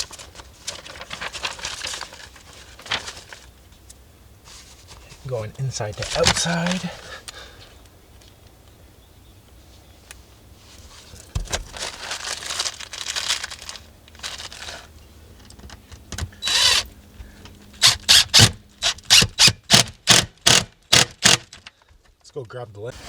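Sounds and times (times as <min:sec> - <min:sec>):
rustling and handling parts: 0:00.0 - 0:08.5, 0:10.0 - 0:19.5
power drill driving screws: 0:16.4 - 0:16.9, 0:17.8 - 0:21.6.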